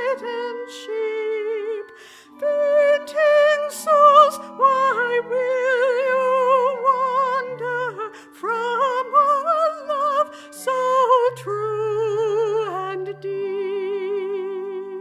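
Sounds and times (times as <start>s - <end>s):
keyboard sustained chords: 0.0s - 15.0s
woman singing a hymn: 0.0s - 15.0s
singer breathing: 2.0s - 2.4s, 8.1s - 8.4s, 10.3s - 10.6s.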